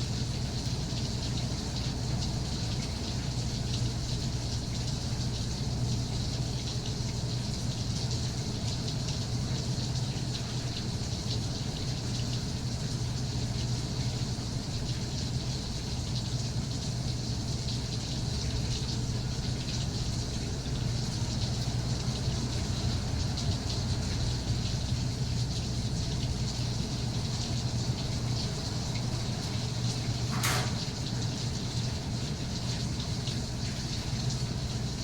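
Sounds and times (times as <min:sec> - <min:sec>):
rain falling: 0:00.1 - 0:35.0.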